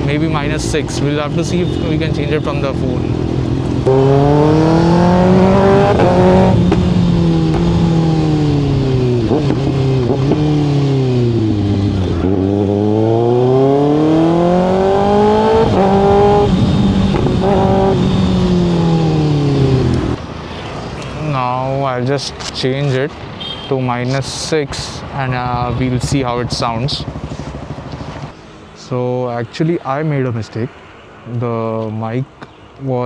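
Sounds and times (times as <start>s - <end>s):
motorcycle engine revving: 0.0s - 20.4s, 24.7s - 28.4s.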